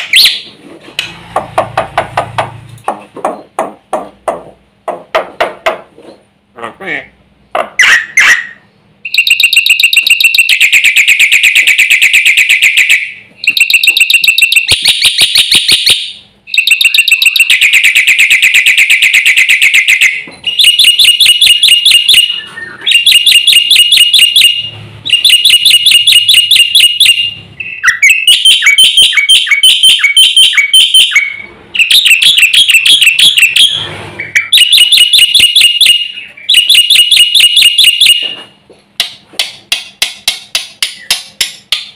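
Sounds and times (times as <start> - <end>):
bird singing harsh notes: 7.8 - 38.4.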